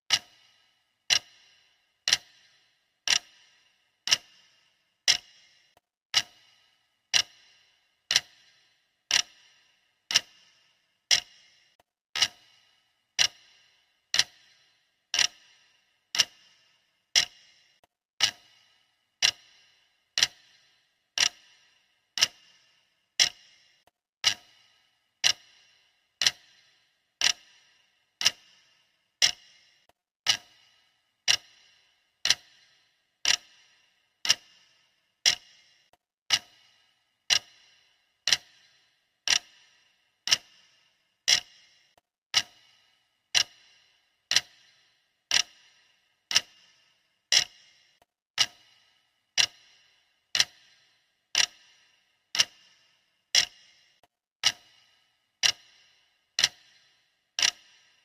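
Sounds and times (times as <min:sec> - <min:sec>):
clock ticking: 0:00.1 - 0:58.0.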